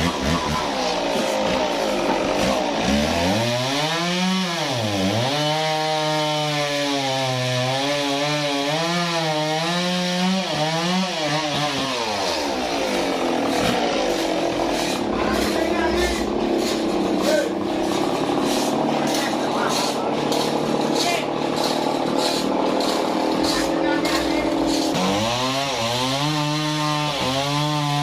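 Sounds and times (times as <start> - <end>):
saw cutting log: 0.0 - 28.0
saw whining: 0.0 - 28.0.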